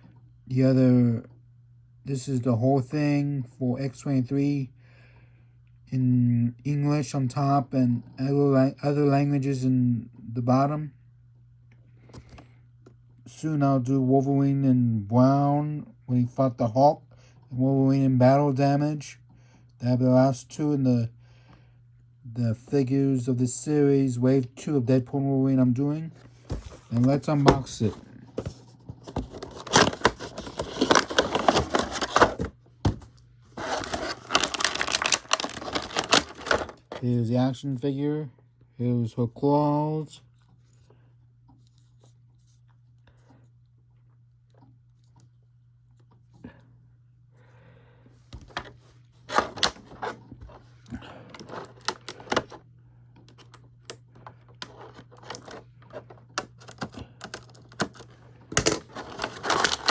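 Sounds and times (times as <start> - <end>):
toy packaging being opened: 27.0 - 32.5, 33.6 - 37.0, 54.6 - 59.9.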